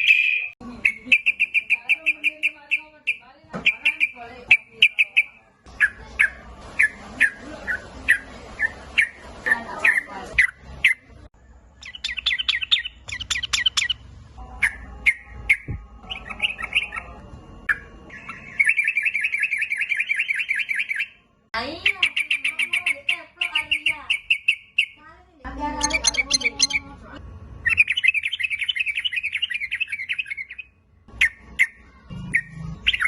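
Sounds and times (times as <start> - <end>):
bulbul chirping and trilling: 0.0 - 11.0, 11.7 - 21.2, 21.9 - 25.0, 25.8 - 26.9, 27.6 - 33.0.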